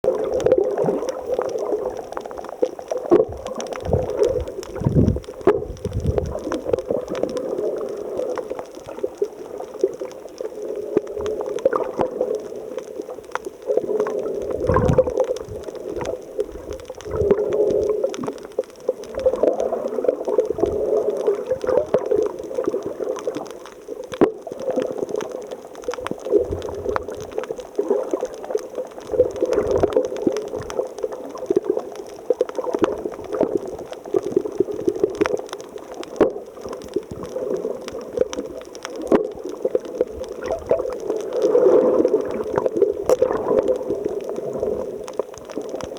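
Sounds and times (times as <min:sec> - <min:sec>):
water gurgling and churning: 0:00.1 - 0:08.2, 0:13.7 - 0:18.4, 0:39.1 - 0:45.0.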